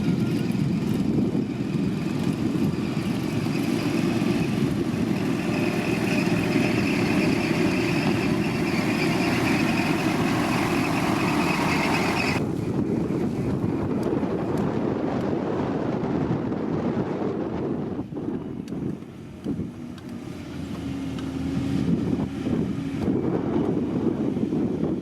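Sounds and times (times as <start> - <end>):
high whine: 0.0 - 13.3
diesel construction machinery running: 0.0 - 15.2.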